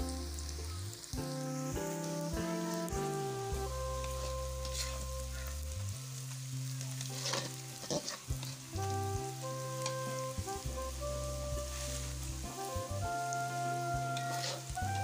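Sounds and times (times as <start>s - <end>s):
background music with held notes: 0.0s - 15.0s
vegetables sizzling in hot oil: 0.0s - 15.0s
spatula scraping a pan: 4.0s - 5.5s, 7.1s - 8.5s, 14.2s - 15.0s.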